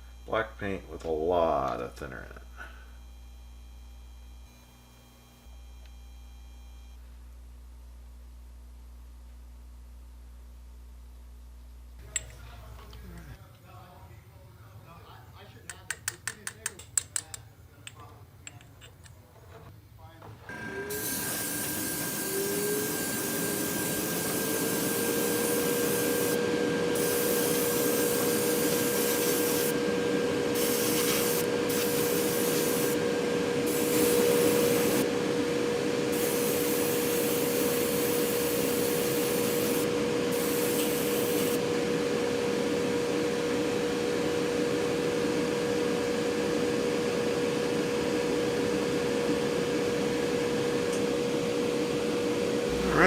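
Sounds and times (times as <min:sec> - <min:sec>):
compressor humming: 0:20.2 - 0:53.0
airbrush spray hissing: 0:20.9 - 0:35.0, 0:36.1 - 0:41.6.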